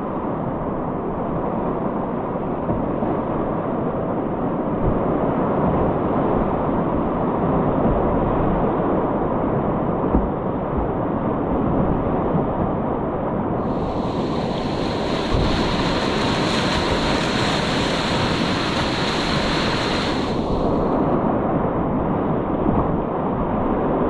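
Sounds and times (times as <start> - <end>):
whitewater rapids rushing: 13.6 - 21.0.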